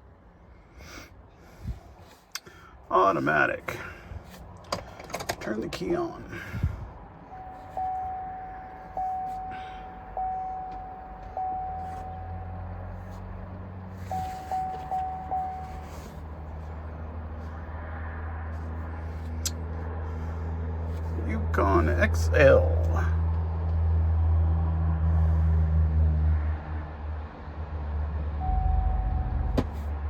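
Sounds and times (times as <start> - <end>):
low steady hum: 0.0 - 24.4, 28.3 - 30.0
dashboard warning chime: 7.3 - 16.6, 28.4 - 29.6.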